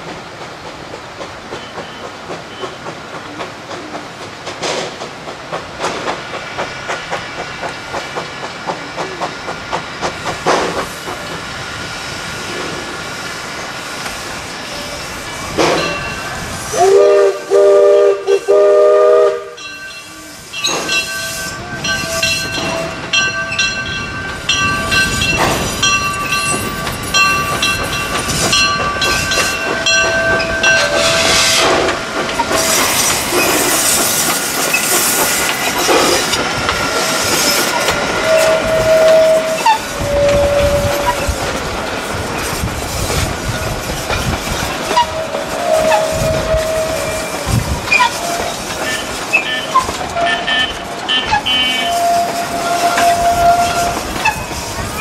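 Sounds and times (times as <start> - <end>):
train running on track: 0.0 - 55.0
train chime whistle blasts: 15.8 - 26.6, 28.5 - 31.9, 38.2 - 41.4, 48.0 - 54.5.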